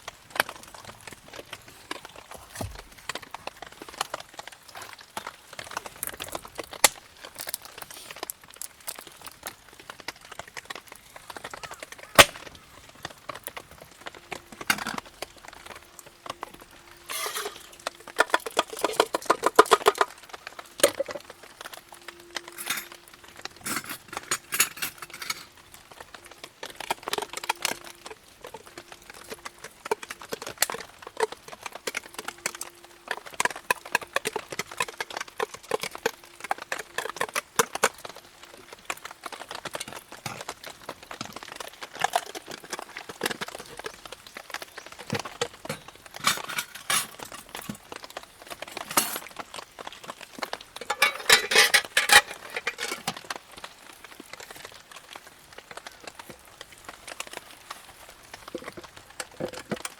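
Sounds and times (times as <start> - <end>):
campfire crackling: 0.0 - 59.9.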